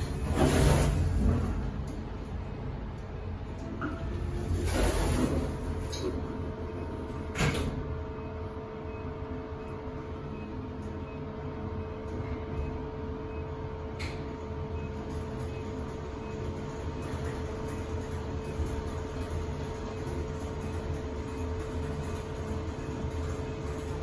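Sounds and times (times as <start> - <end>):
lift running rumble and hum: 0.0 - 24.0.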